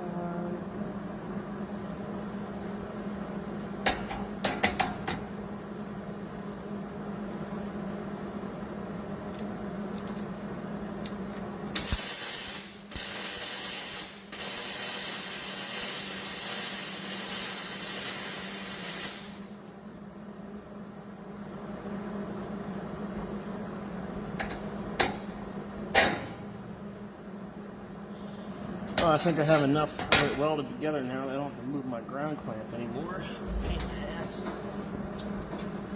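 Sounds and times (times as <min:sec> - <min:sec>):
welding arc crackling and hissing: 0:11.7 - 0:19.6.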